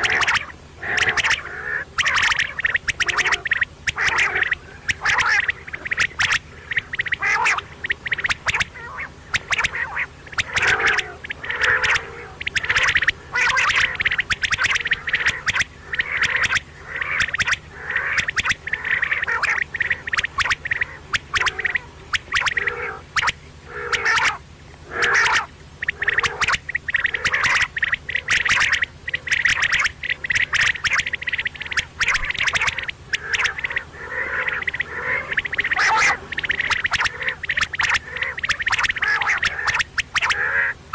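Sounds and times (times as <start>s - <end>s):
quail calling: 0.0s - 40.9s.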